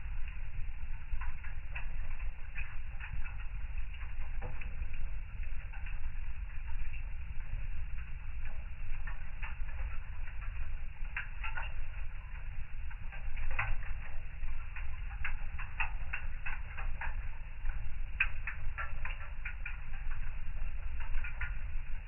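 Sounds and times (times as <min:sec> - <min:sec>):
fire crackling in a fireplace: 0:00.0 - 0:22.0.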